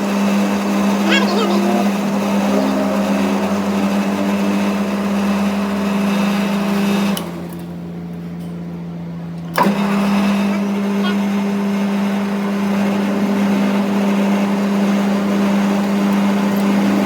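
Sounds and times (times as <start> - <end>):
machine motor humming: 0.1 - 7.5.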